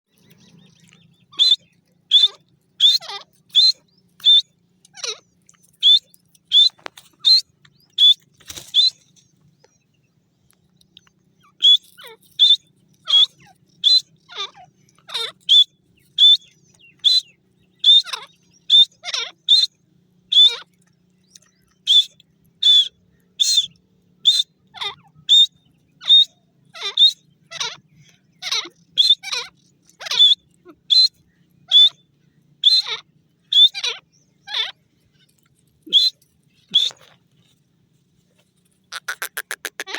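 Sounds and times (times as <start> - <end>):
bird sharp whistled calls: 1.2 - 5.1, 5.8 - 9.1, 11.4 - 14.3, 15.2 - 20.7, 21.5 - 24.6, 25.2 - 27.8, 28.4 - 34.0, 35.9 - 37.2.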